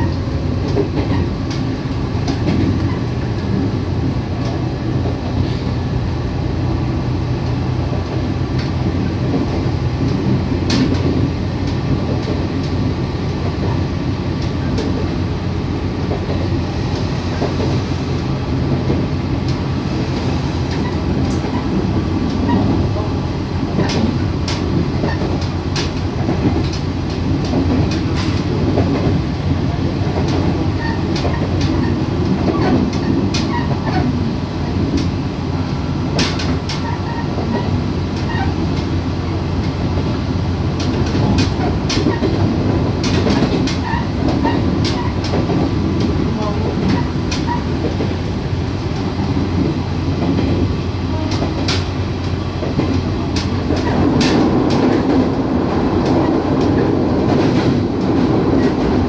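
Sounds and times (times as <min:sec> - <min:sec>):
train rumbling on track: 0:00.0 - 0:59.0
wheels clicking over rail joints: 0:20.6 - 0:35.2, 0:36.1 - 0:59.0.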